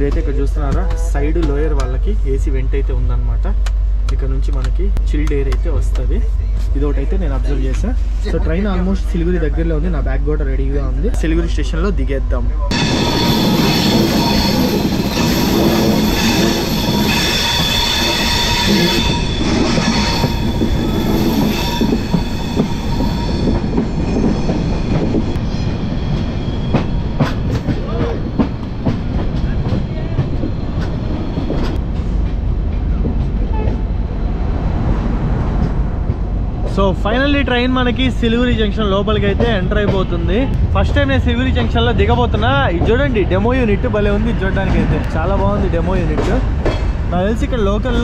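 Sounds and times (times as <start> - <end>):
train wheels rumbling on rail: 0.0 - 48.0
high wheel squeal: 12.7 - 28.8.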